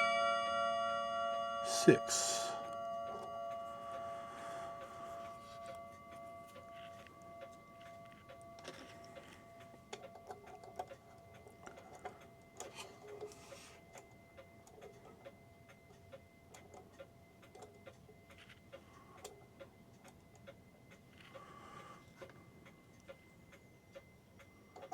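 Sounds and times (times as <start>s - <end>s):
struck chime ringing: 0.0s - 9.9s
pendulum clock ticking: 0.0s - 24.9s.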